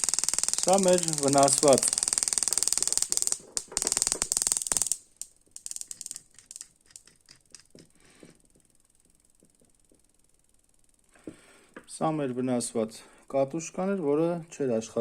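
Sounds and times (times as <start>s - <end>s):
sharp spark snaps: 0.0s - 7.7s
scattered clicks: 0.0s - 7.9s.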